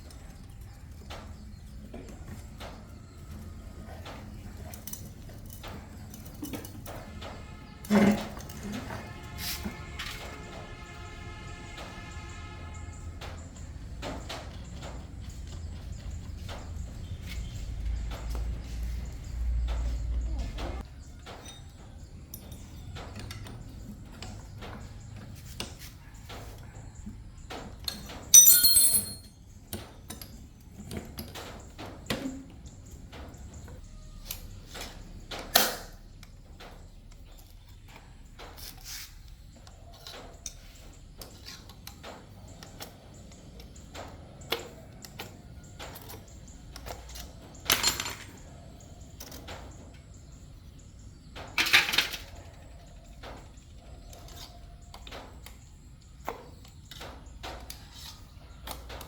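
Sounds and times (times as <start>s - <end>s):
metal tools clicking and knocking: 4.1s - 8.7s, 27.8s - 31.4s, 39.9s - 48.5s
loud ringing metal clang: 28.4s - 29.3s.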